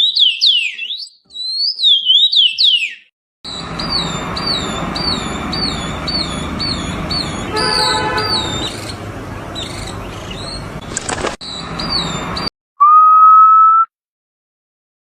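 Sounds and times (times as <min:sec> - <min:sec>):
songbird repeating high note: 0:03.8 - 0:09.0
buzzy horn-like tone: 0:07.4 - 0:08.8.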